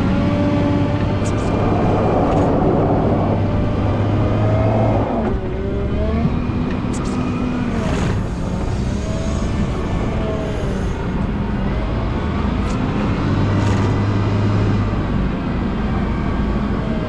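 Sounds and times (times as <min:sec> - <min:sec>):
rising and falling whining tones: 0:00.0 - 0:07.8
wheel loader engine drone: 0:00.0 - 0:17.0.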